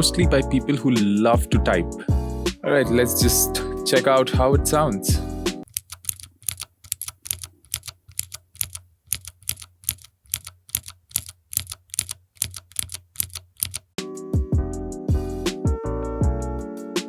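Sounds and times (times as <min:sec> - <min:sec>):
music: 0:00.0 - 0:05.6, 0:14.0 - 0:17.0
mechanical keyboard clicking: 0:05.6 - 0:13.9.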